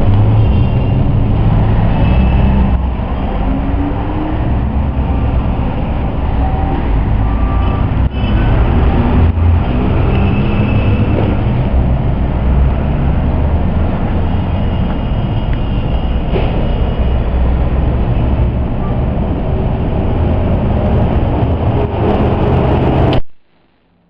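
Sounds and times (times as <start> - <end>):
loud low rumbling: 16.1 - 23.3.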